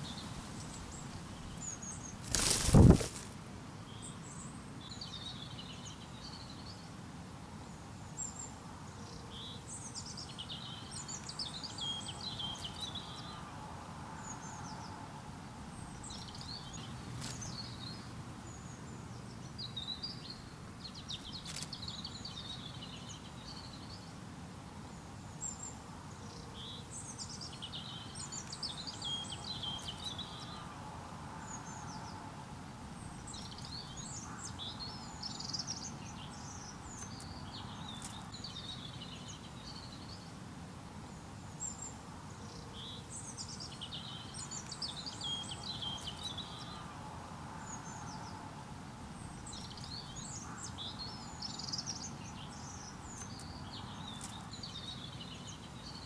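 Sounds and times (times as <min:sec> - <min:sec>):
songbirds chirping and trilling: 0:00.0 - 0:56.0.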